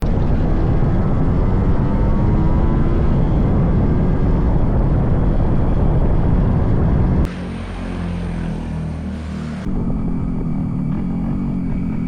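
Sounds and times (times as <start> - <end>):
wind noise on microphone: 0.0 - 7.3
motorcycle engine running: 0.0 - 12.0.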